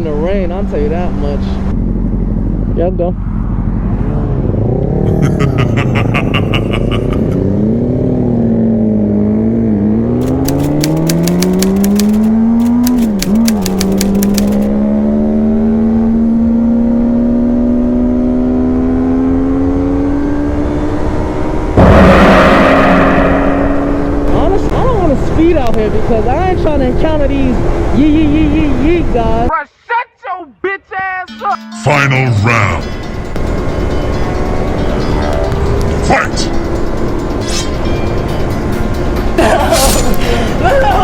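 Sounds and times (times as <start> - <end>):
motorcycle engine revving: 7.2 - 28.0
loud rush of noise: 21.8 - 25.0.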